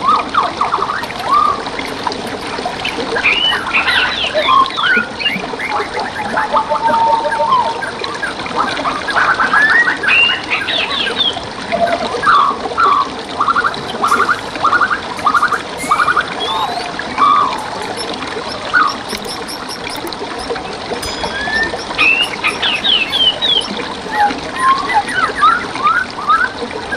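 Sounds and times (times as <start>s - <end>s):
trickling stream water: 0.0s - 26.9s
songbirds chirping: 14.0s - 26.4s.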